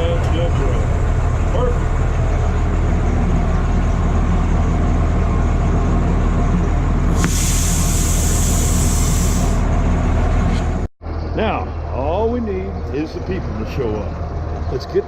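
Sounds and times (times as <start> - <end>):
locomotive engine idling: 0.0 - 10.9, 11.7 - 15.0
air venting hiss: 7.2 - 9.6.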